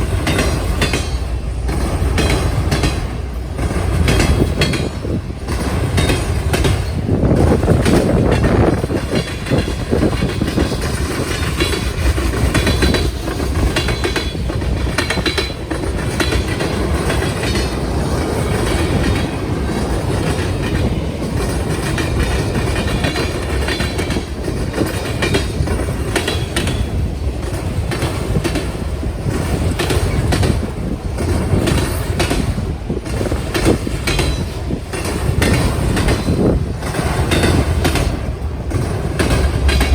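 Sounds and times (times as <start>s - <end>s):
train wheels rumbling: 0.0s - 39.9s.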